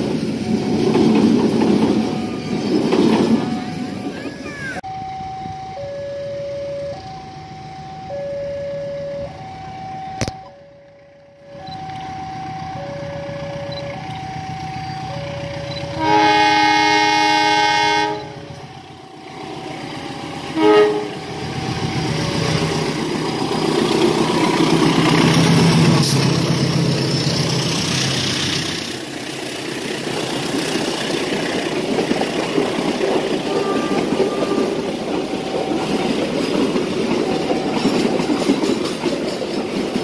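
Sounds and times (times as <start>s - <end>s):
train engine and wheels passing: 0.0s - 40.0s
two-tone crossing warning: 0.0s - 40.0s
locomotive horn: 15.9s - 18.7s, 20.4s - 22.6s, 33.4s - 35.0s.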